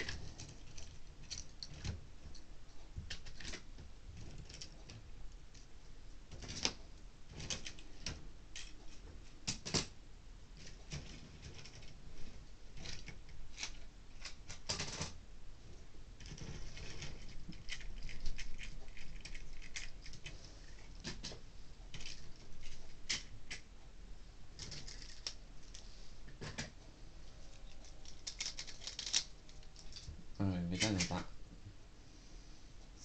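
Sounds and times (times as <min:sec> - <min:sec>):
soft rustle: 0:10.6 - 0:31.1.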